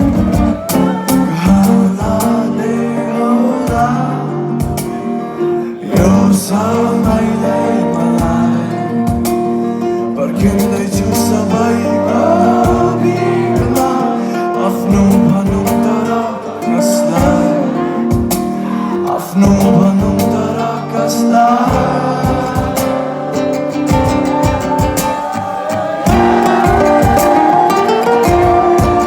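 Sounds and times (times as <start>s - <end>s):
drum hits: 0.0s - 2.4s, 4.6s - 5.0s, 6.0s - 6.3s, 8.2s - 9.5s, 12.6s - 14.0s, 14.9s - 16.0s, 17.2s - 18.6s, 21.7s - 29.0s
man singing: 0.0s - 29.0s
strummed acoustic guitar: 0.0s - 29.0s.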